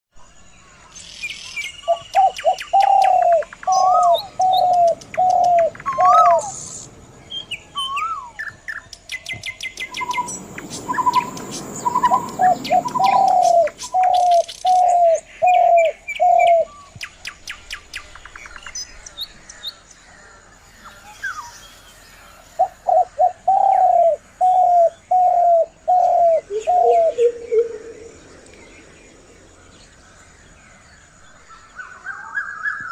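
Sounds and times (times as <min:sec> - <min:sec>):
small birds chirping and trilling: 0:00.3 - 0:32.9
bird calling loud repeated notes: 0:01.9 - 0:08.5, 0:09.7 - 0:16.6
soft rushing noise: 0:03.9 - 0:08.0, 0:09.6 - 0:15.0.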